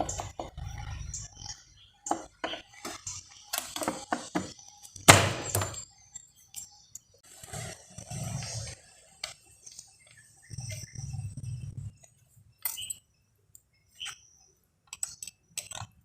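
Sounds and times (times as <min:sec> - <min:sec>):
metal tools clinking: 0:12.6 - 0:13.1.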